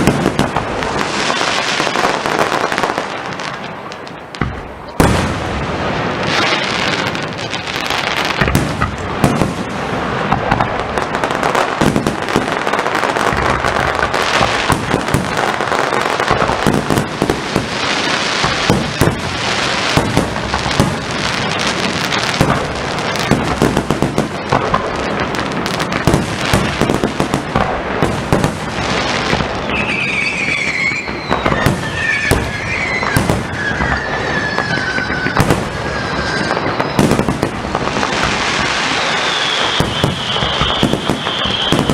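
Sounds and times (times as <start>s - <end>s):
firework bangs and crackling: 0.0s - 41.9s
firework whistles falling in pitch: 29.3s - 41.9s.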